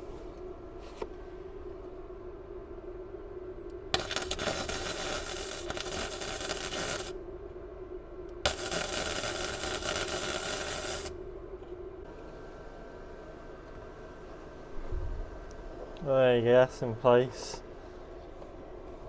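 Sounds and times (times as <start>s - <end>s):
welder arcing on metal: 4.0s - 7.2s, 8.5s - 11.2s.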